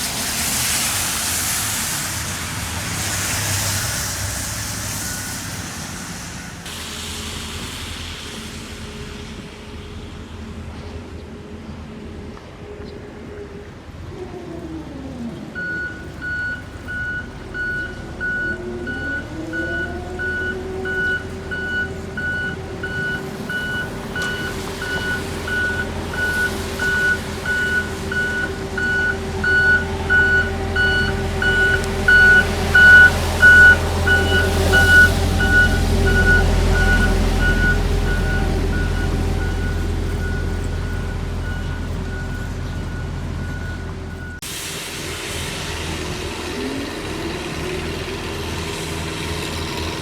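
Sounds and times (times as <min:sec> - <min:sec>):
engine rumble: 0:00.0 - 0:50.0
reversing alarm beeping: 0:15.6 - 0:44.4.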